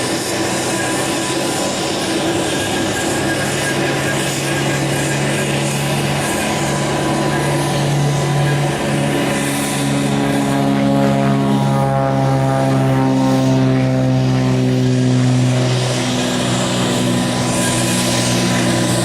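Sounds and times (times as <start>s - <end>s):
propeller airplane engine humming: 0.0s - 19.0s.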